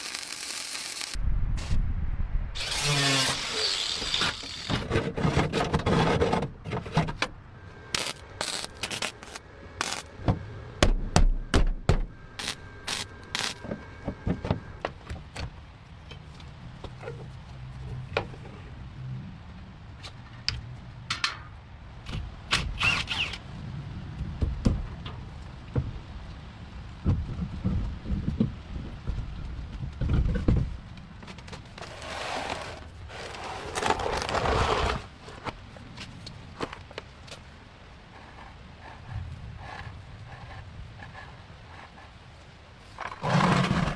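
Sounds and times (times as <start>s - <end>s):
knocks clicks and scrapes: 2.6s - 10.4s.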